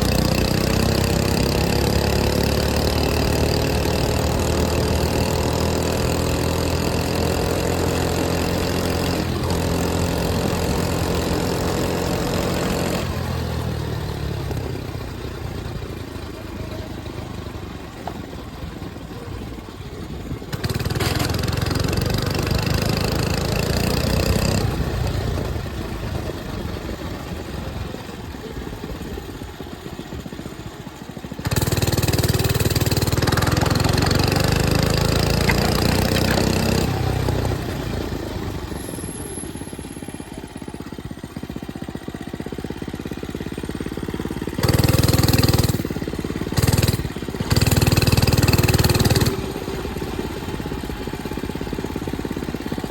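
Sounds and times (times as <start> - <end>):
mini bike engine revving: 0.0 - 52.9.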